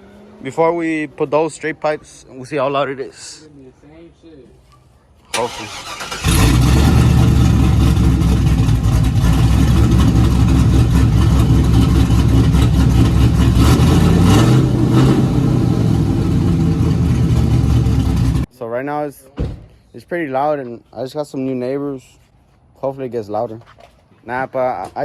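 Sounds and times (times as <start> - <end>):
truck engine cranking: 5.3 - 18.5
loud truck engine running: 5.5 - 18.5.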